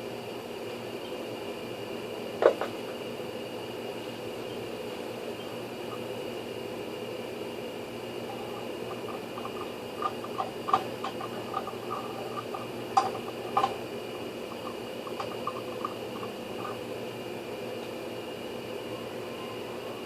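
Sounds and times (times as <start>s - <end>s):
steady hum: 0.0s - 20.0s
small hard parts clinking: 8.3s - 13.8s, 14.6s - 16.8s.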